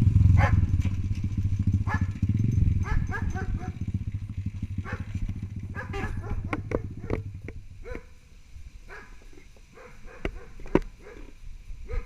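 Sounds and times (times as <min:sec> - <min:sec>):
motorcycle engine idling: 0:00.0 - 0:08.1
dog barking and yelping: 0:00.4 - 0:00.7, 0:01.9 - 0:02.2, 0:02.8 - 0:03.8, 0:04.8 - 0:05.1, 0:05.7 - 0:08.2, 0:08.9 - 0:12.0.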